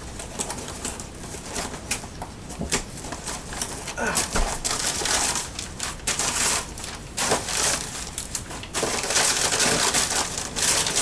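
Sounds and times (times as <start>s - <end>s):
packaging rustling and crinkling: 4.5s - 11.0s.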